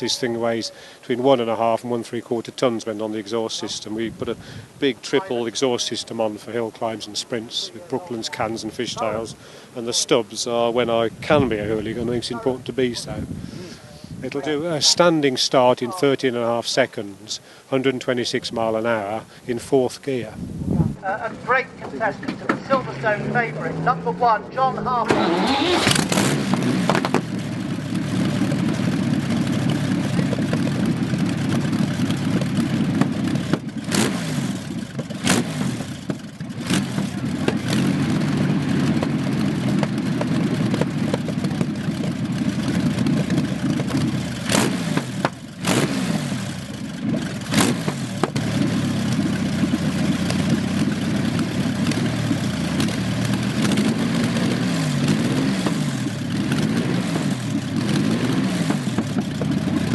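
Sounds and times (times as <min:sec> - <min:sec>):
aero engine revving: 0:00.0 - 0:15.3, 0:21.5 - 0:59.9
sharp engine cracks: 0:25.0 - 0:27.5, 0:28.3 - 0:59.9.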